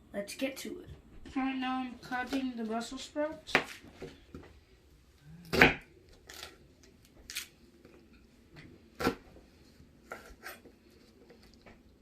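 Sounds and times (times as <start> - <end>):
knife cutting on cutting board: 10.1 - 10.7.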